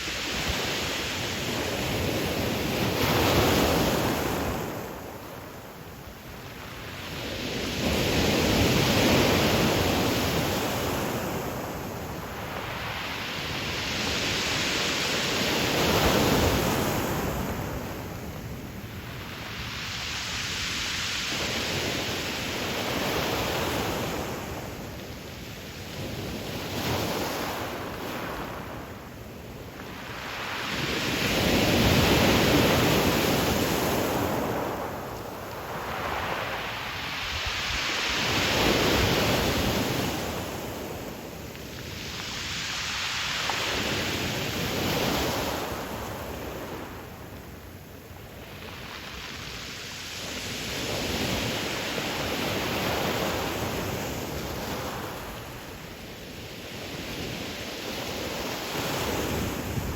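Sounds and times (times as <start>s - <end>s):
waves breaking on pebble beach: 29.8s - 46.8s.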